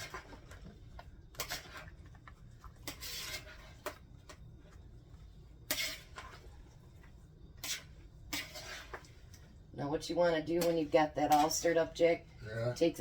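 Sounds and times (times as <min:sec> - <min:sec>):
spoon scraping and clinking bowl: 0:07.6 - 0:09.1.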